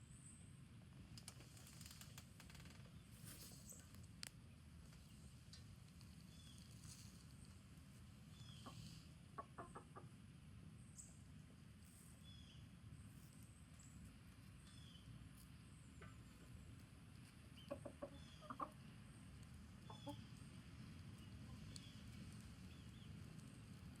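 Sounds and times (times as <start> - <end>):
chickens clucking: 8.3 - 10.3, 15.8 - 22.0.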